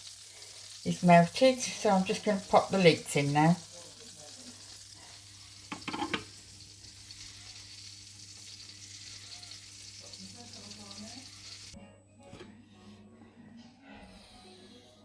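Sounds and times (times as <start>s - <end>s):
butter sizzling in a pan: 0.0s - 11.8s
leeks clattering into pan: 5.6s - 6.4s.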